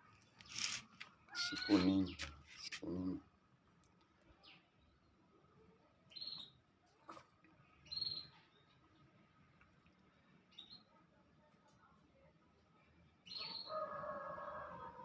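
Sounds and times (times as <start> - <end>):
small animal high-pitched calls: 1.3 - 2.0.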